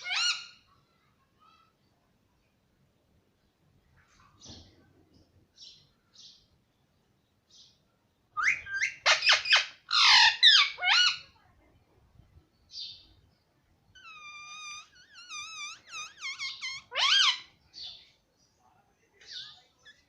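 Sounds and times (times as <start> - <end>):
parrot calling: 0.0 - 0.6, 8.4 - 11.3, 14.0 - 17.5.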